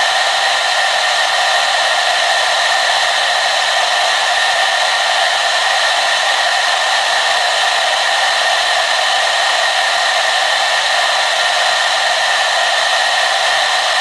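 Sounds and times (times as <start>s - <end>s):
hair dryer running: 0.0s - 14.0s.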